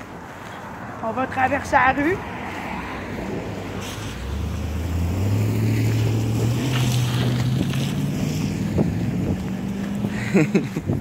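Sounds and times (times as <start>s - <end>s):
wind buffeting microphone: 1.6s - 11.0s
vehicle engine accelerating: 2.2s - 11.0s.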